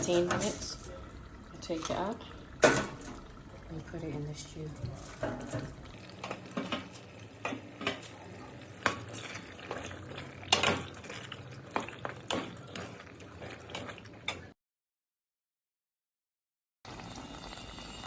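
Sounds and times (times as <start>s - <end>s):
spoon knocking and scraping pot: 4.8s - 14.5s.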